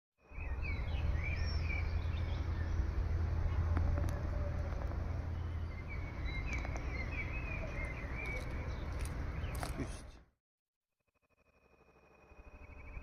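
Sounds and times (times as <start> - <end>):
small birds chirping: 0.2 - 10.2.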